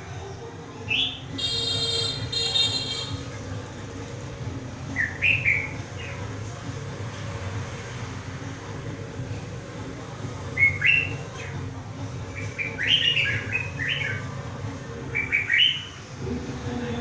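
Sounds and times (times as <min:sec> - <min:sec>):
bulbul whistled song: 0:00.9 - 0:03.1, 0:05.0 - 0:06.2, 0:10.5 - 0:11.6, 0:12.3 - 0:14.3, 0:15.1 - 0:16.0.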